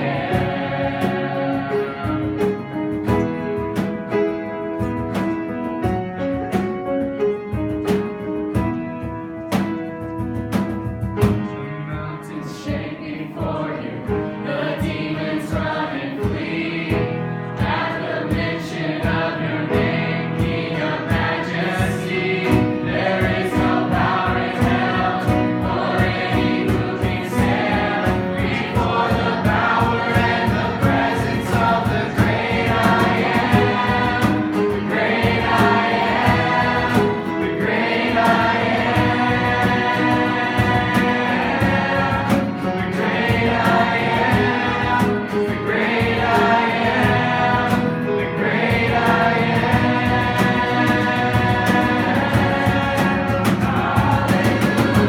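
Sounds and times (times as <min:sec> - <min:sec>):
group singing: 0:00.0 - 0:03.9, 0:12.0 - 0:55.0
guitar: 0:00.0 - 0:55.0
drum beat: 0:08.6 - 0:12.1, 0:17.6 - 0:55.0.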